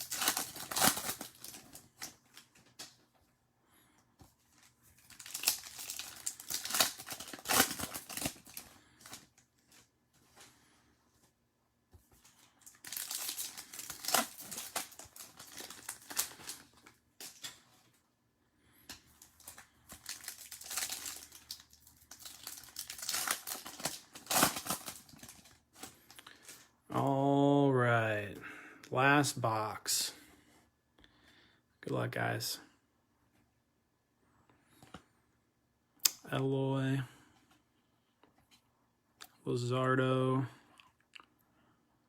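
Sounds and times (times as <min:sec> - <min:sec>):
plastic wrappers crinkling and tearing: 0:00.0 - 0:03.0, 0:04.5 - 0:09.9, 0:12.2 - 0:17.9, 0:19.0 - 0:26.7.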